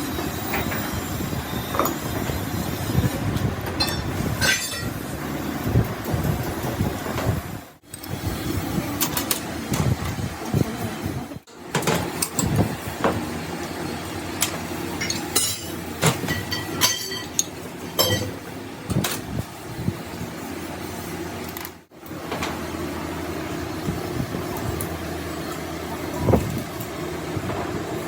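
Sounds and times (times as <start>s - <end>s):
steady mechanical hum: 0.0s - 28.0s
metal tools clinking and knocking: 15.0s - 18.3s.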